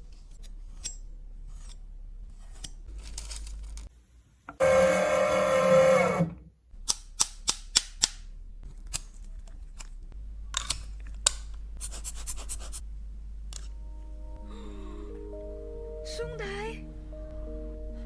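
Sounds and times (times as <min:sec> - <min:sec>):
sharp clicks of hard object: 0:06.8 - 0:08.2.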